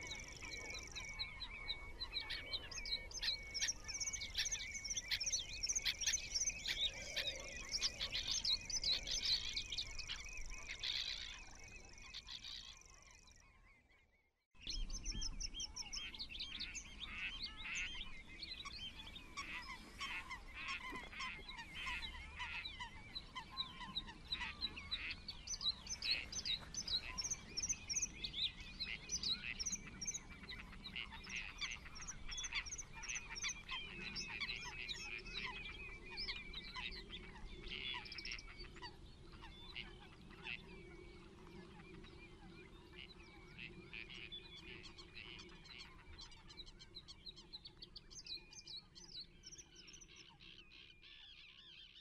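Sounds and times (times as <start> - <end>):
wild birds chirping chorus: 0.0 - 52.0.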